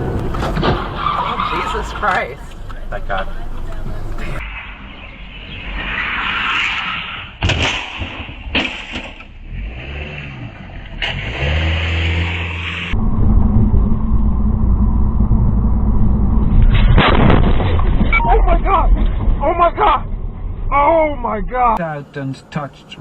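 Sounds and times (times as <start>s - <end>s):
vehicle low rumble: 0.0s - 23.0s.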